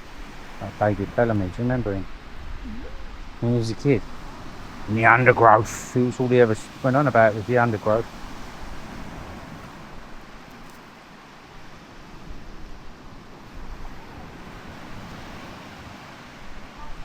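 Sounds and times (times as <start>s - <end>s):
surf: 0.0s - 17.0s
wind rumbling on microphone: 0.0s - 17.0s.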